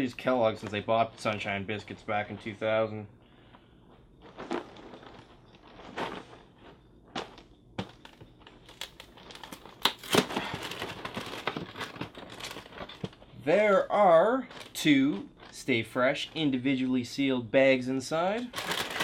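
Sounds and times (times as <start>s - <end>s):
plastic packaging crinkling: 4.2s - 16.5s, 18.4s - 19.0s.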